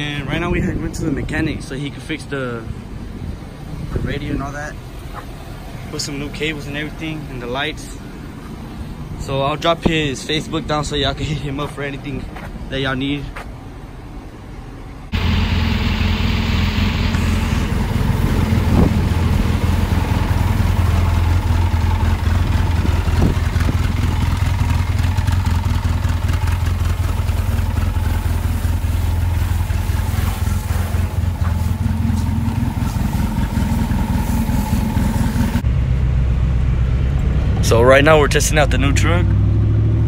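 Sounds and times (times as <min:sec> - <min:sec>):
pickup truck engine droning: 0:15.1 - 0:40.0.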